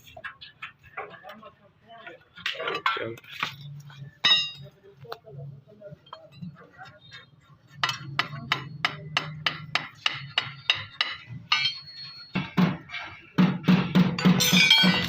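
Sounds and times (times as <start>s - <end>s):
hammer striking metal: 4.2s - 4.7s, 7.8s - 15.0s.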